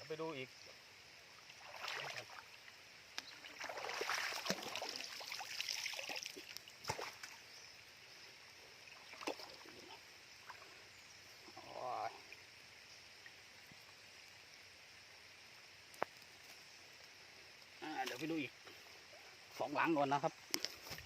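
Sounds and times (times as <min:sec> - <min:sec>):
wading through shallow water: 0:01.4 - 0:02.6, 0:03.3 - 0:07.5.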